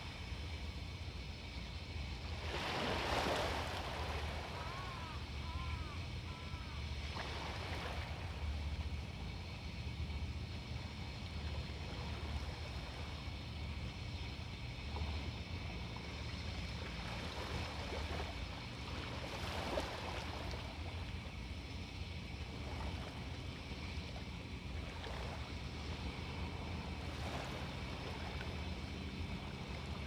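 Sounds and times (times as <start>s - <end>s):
sea waves washing on beach: 2.4s - 8.7s.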